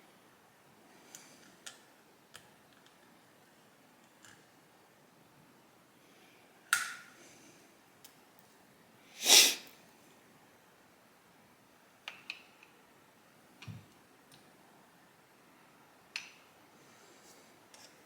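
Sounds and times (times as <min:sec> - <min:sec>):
loud sniff: 0:09.1 - 0:09.8.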